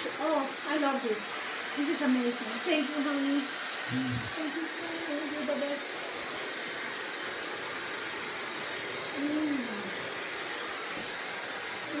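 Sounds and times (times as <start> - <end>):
hair dryer blowing air: 0.0 - 12.0
short falling voice hum: 3.9 - 4.3.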